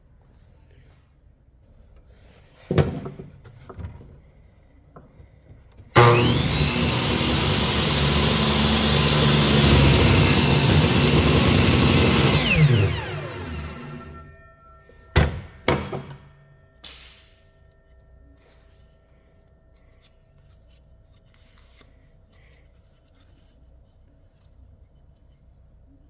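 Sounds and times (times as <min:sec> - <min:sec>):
electric woodworking power tool: 0:06.0 - 0:14.4.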